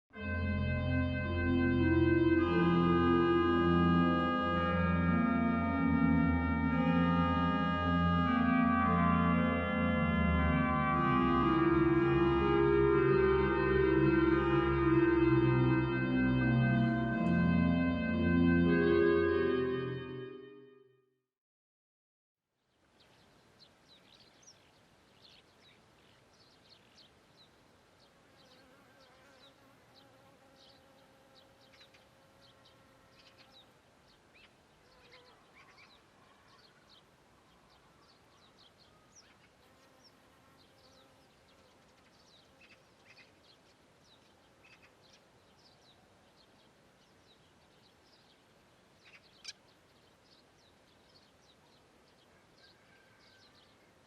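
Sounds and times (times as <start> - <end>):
high chirps of birds and insects: 22.7 - 53.9.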